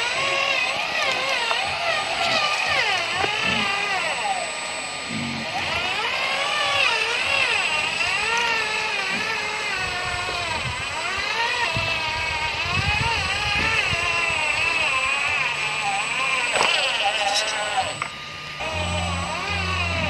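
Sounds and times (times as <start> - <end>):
truck engine revving under load: 18.6 - 20.0.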